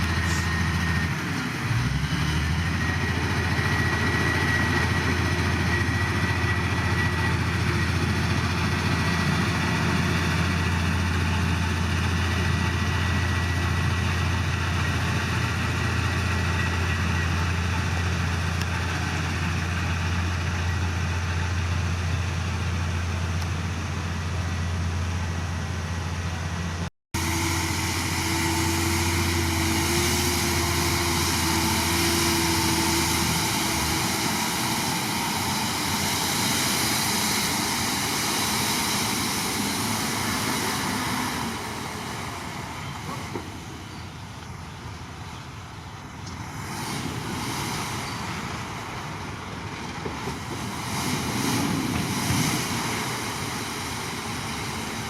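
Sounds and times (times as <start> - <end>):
diesel engine low drone: 0.0 - 55.0
high held whine: 25.2 - 49.6.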